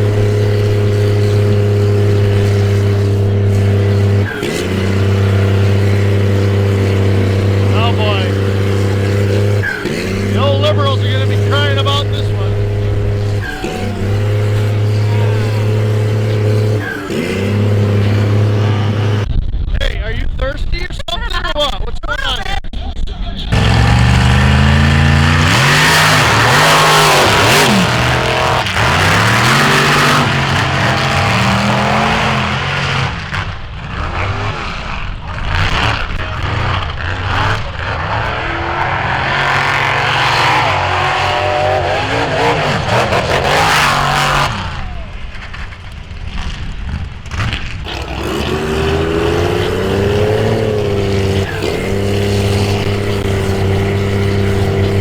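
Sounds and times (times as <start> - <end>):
off-road engines revving: 0.0 - 19.3, 23.4 - 55.0
rushing noise: 23.5 - 33.2.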